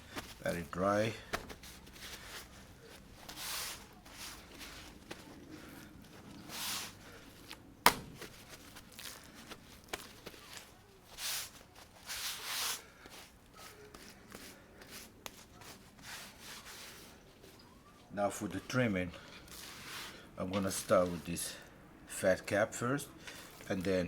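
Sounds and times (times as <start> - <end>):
paper towels rustling: 0.0 - 21.3.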